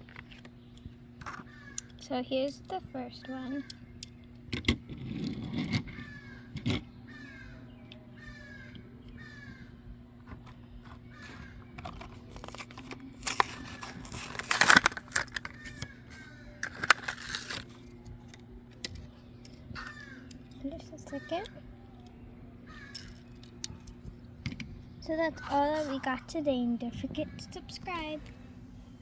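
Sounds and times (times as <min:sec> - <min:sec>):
bird cawing: 0:01.3 - 0:02.0, 0:05.9 - 0:10.0, 0:10.8 - 0:12.1, 0:15.2 - 0:17.3, 0:19.7 - 0:21.6, 0:22.7 - 0:23.3
packaging crinkling and tearing: 0:11.2 - 0:15.9, 0:16.6 - 0:18.4
clicks of plastic packaging: 0:11.8 - 0:15.9, 0:16.6 - 0:20.0.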